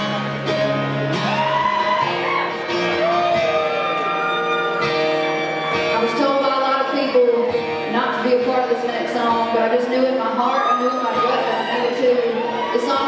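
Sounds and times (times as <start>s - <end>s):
live country band playing: 0.0s - 13.0s.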